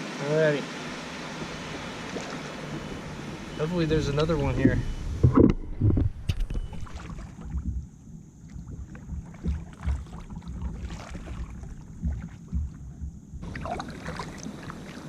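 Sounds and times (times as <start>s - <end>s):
wind rumble on microphone: 2.6s - 15.0s
knocks against kayak hull: 8.7s - 13.6s.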